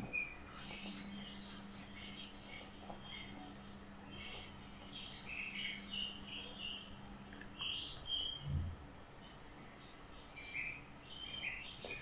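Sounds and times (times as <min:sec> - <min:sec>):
birds chirping: 0:00.0 - 0:12.0
faint low hum: 0:00.0 - 0:12.0.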